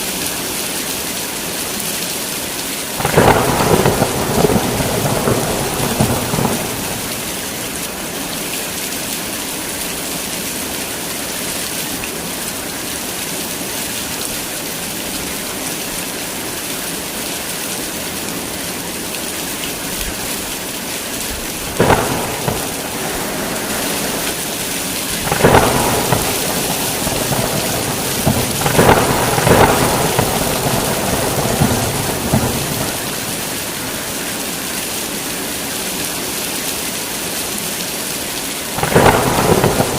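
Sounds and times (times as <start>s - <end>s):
heavy rain: 0.0s - 39.9s
thunderclaps: 3.0s - 7.8s, 21.3s - 34.0s, 38.8s - 39.9s
thunder rumbling: 3.0s - 8.0s, 21.4s - 34.1s, 38.8s - 39.9s.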